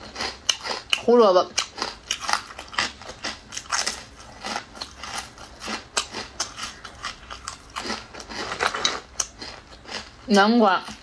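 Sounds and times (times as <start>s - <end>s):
crisp chip crunching: 0.0s - 11.0s.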